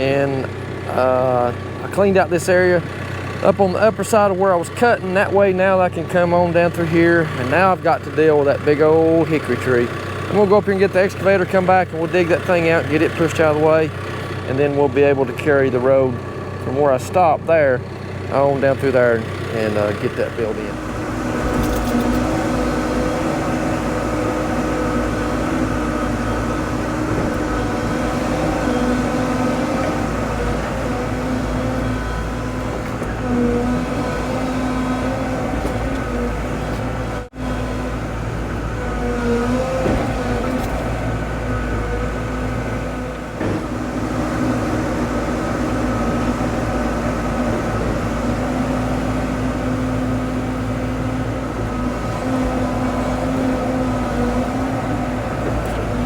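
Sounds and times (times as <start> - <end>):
diesel engine running steadily: 0.0 - 56.0.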